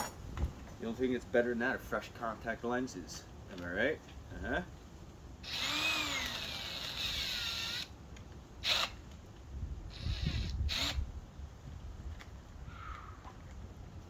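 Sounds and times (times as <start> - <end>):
cordless drill whirring: 5.4 - 7.9, 8.6 - 9.0, 9.9 - 11.0.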